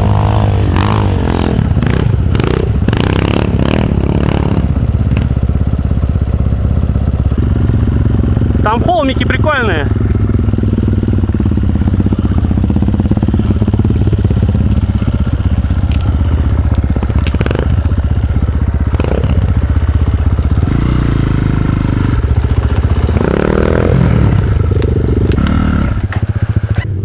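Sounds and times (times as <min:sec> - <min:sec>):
dirt bike engine running hard: 0:00.0 - 0:27.0
bike knocks and clatters: 0:13.1 - 0:21.0, 0:22.0 - 0:26.8.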